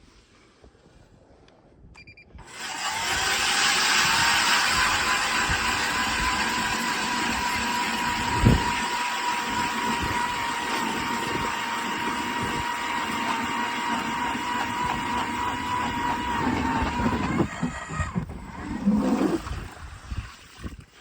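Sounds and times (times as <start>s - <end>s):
small gasoline engine running: 2.4s - 19.1s.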